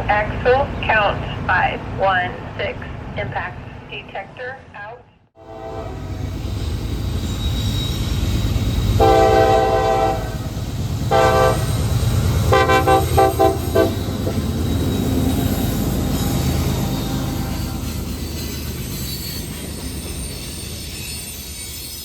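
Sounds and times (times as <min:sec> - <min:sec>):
freight train cars rumbling: 0:00.0 - 0:22.0
locomotive air horn blasts: 0:05.4 - 0:06.2, 0:09.0 - 0:10.4, 0:11.1 - 0:11.8, 0:12.4 - 0:14.4.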